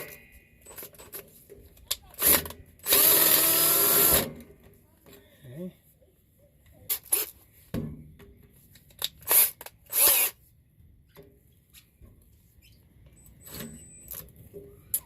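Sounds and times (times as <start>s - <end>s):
power tool bursts: 2.2s - 4.3s.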